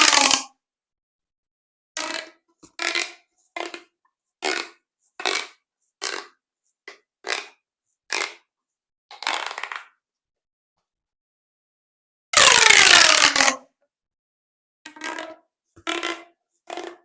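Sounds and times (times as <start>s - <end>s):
plastic pop tubes crunching: 0.0s - 0.5s, 12.4s - 13.6s, 15.9s - 17.0s.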